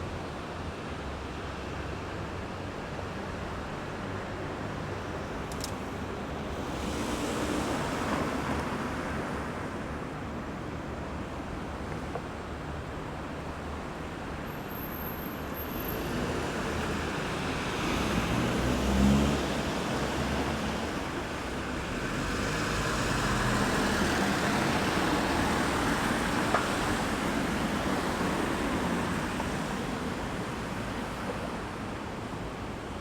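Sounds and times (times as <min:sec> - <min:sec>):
road traffic passing: 0:15.5 - 0:33.0.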